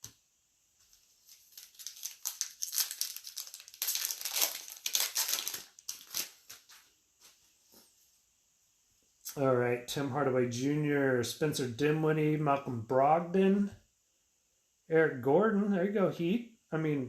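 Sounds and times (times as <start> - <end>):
foil wrapper crinkling: 0.8 - 6.9.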